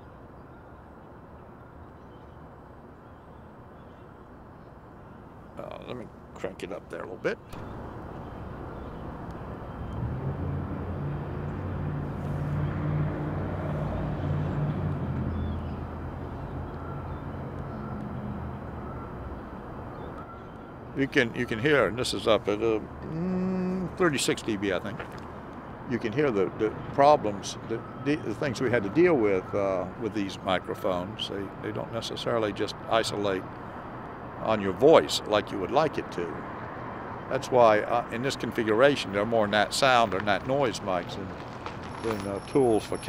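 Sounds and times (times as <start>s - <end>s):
outdoor background noise: 0.0s - 43.0s.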